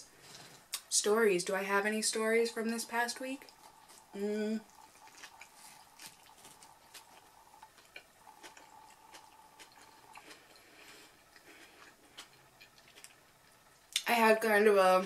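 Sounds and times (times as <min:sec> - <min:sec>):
faint high hum: 0:00.0 - 0:15.0
wet chewing mouth sounds: 0:03.4 - 0:14.0.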